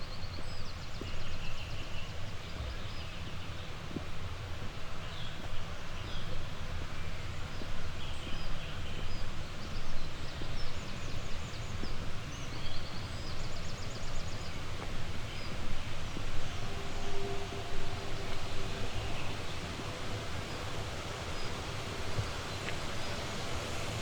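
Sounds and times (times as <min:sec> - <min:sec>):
songbirds chirping: 0:07.6 - 0:24.0
steady rushing background: 0:15.1 - 0:24.0.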